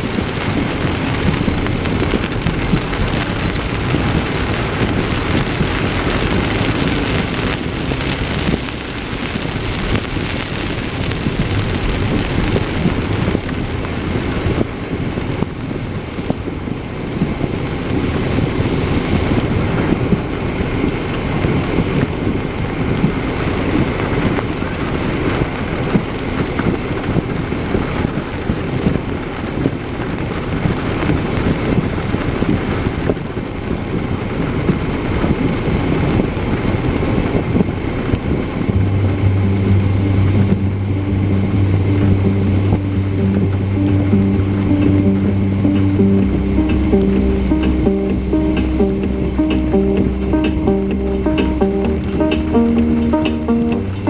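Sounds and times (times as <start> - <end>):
heavy rain on a car: 0.0 - 54.0
tyres on a wet road: 0.0 - 54.0.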